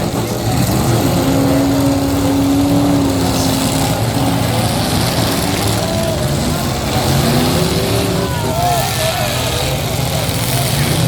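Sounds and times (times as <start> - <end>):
car engines running and revving: 0.0 - 11.0.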